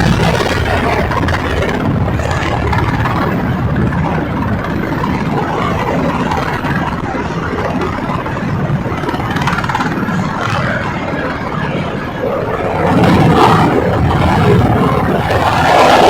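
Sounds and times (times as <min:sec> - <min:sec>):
helicopters running close by: 0:00.0 - 0:16.0.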